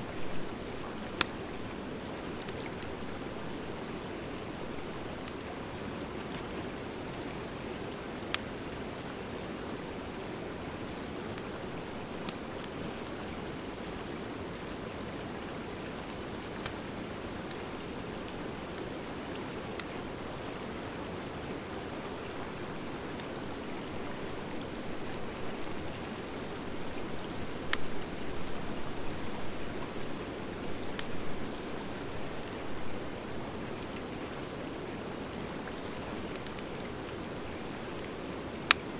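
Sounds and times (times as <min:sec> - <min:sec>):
wood fire crackling and popping: 0:00.8 - 0:03.4, 0:16.4 - 0:18.2, 0:35.3 - 0:38.9.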